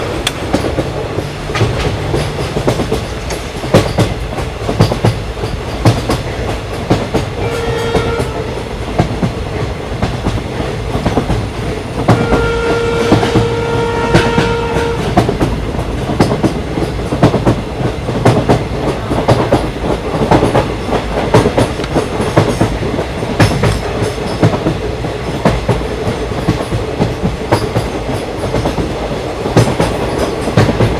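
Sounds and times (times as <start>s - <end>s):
train wheels clattering on rails: 0.0s - 30.9s
train horn blasts: 7.4s - 8.6s, 11.1s - 17.4s.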